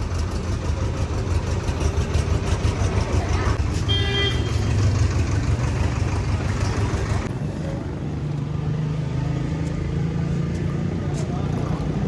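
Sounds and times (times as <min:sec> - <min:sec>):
tractor diesel engine running: 0:00.0 - 0:08.4.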